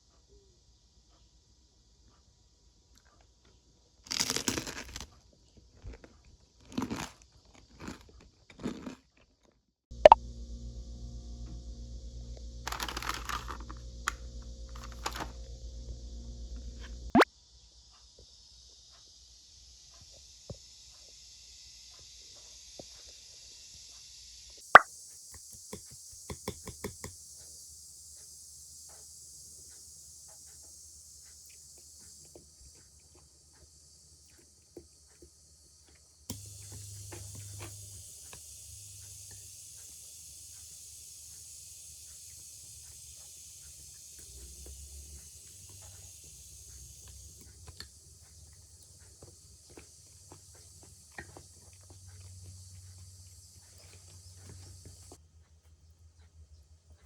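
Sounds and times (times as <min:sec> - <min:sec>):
crisp food crunching: 0:04.1 - 0:05.2, 0:05.8 - 0:09.6, 0:12.7 - 0:13.8, 0:48.8 - 0:52.5
cicadas droning: 0:10.0 - 0:57.0.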